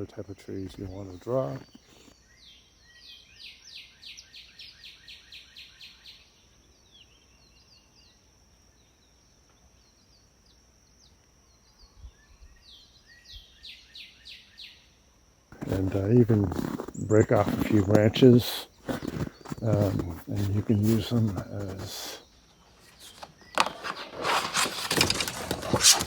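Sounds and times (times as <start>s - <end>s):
high thin hum: 15.6s - 22.2s
small bird chirping: 15.6s - 23.8s.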